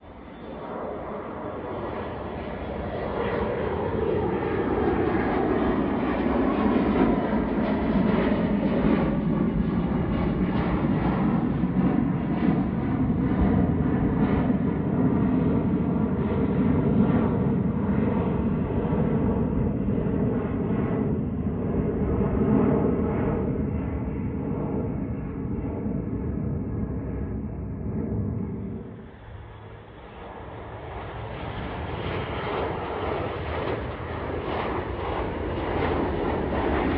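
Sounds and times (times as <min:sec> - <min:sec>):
aircraft engines at takeoff: 0:00.0 - 0:36.9.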